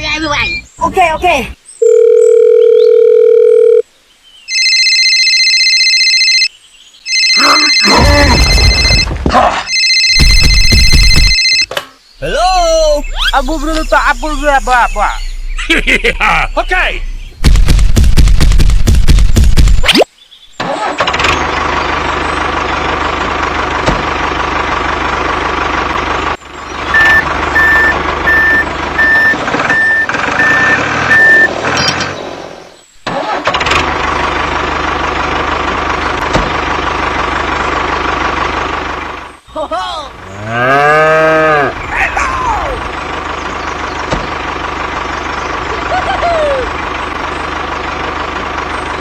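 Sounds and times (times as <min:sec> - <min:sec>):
tractor engine running: 0:07.1 - 0:19.8, 0:20.6 - 0:40.6, 0:41.7 - 0:49.0
reversing beeps: 0:27.0 - 0:31.9.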